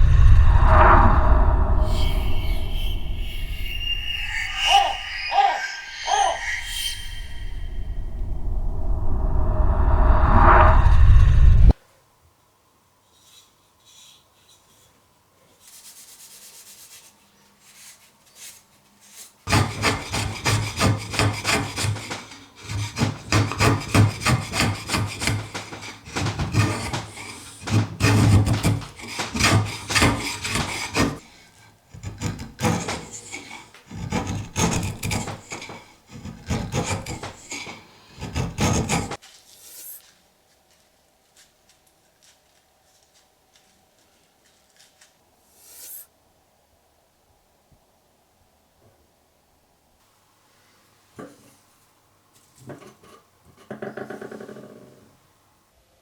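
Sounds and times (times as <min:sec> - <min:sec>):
hand tool scraping: 0:01.7 - 0:08.2, 0:17.6 - 0:40.2.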